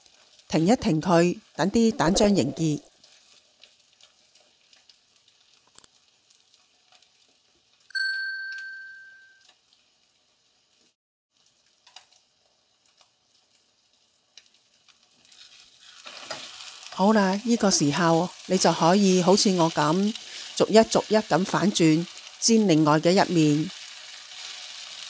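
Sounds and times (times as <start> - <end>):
food frying faintly in a pan: 0.0 - 25.0
bright ding: 7.9 - 9.4.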